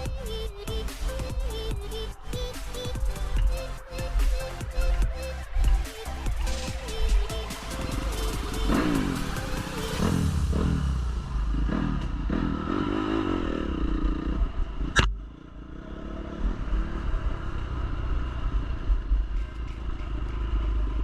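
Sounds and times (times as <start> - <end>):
dirt bike engine revving: 0.0 - 14.9.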